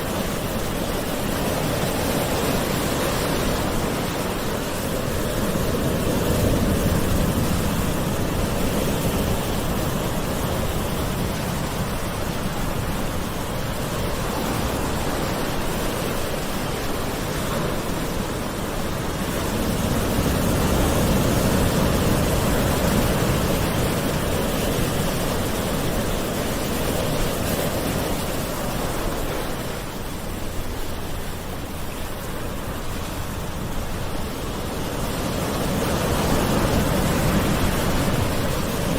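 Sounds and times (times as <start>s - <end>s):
ocean waves washing onto shore: 0.0s - 38.9s.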